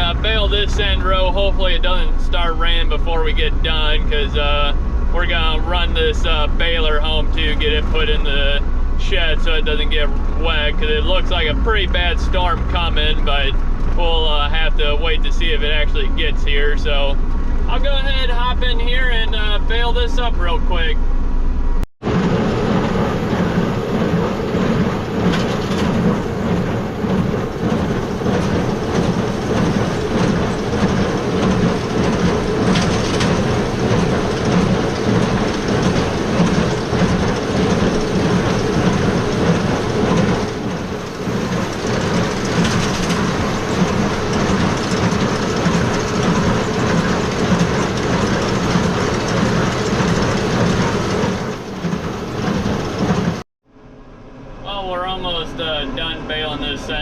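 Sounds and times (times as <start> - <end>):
tractor engine running: 0.0 - 53.4
baler running: 22.1 - 53.4.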